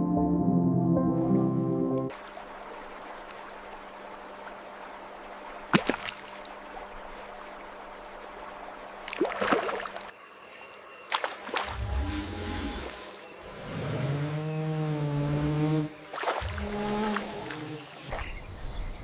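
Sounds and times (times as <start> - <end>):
flowing water rushing: 2.1 - 10.2, 15.9 - 18.2.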